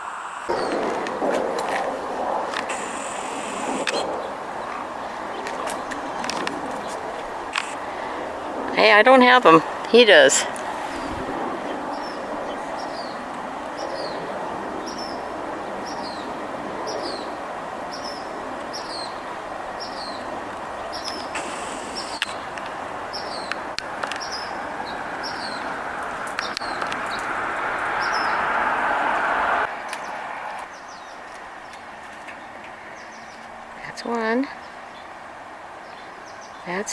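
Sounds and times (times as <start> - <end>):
steady rushing noise: 0.0 - 30.6
small bird chirping: 2.6 - 7.8, 19.8 - 23.6.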